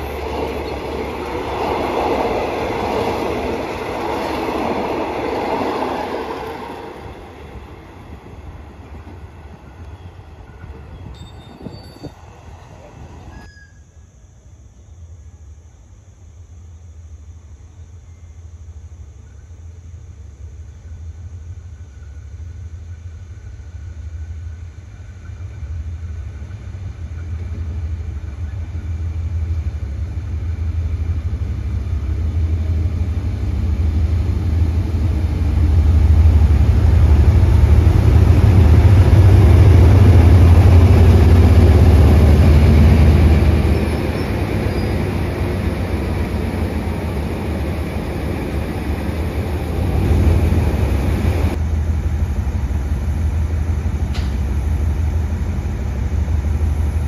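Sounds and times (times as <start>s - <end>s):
diesel locomotive engine rumble: 0.0s - 13.6s, 15.0s - 57.0s
train carriages rolling: 0.0s - 13.9s, 31.2s - 57.0s.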